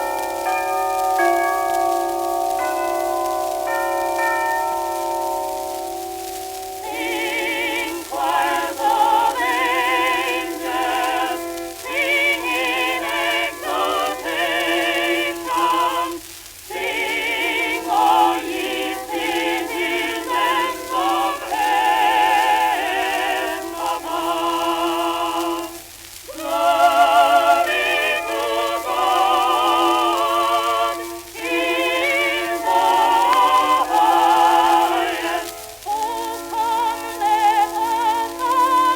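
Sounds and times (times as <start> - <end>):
operatic singing on old record: 0.0 - 38.9.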